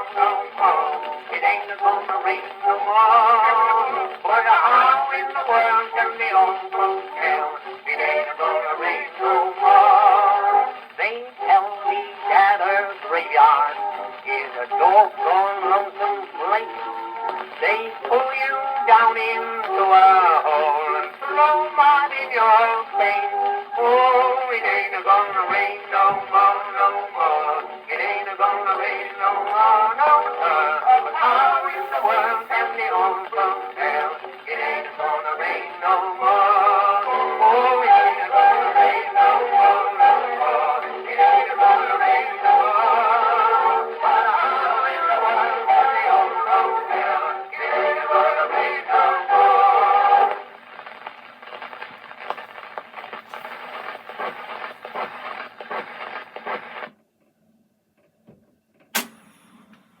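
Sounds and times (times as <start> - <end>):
old acoustic record music: 0.0 - 57.3, 58.0 - 60.0
sharp click: 58.8 - 60.0.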